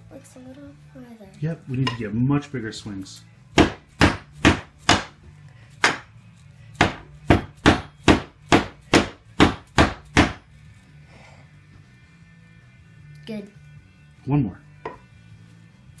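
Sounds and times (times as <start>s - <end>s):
hammer striking wooden peg: 3.6s - 5.2s, 5.8s - 6.1s, 6.8s - 10.5s, 14.8s - 15.1s.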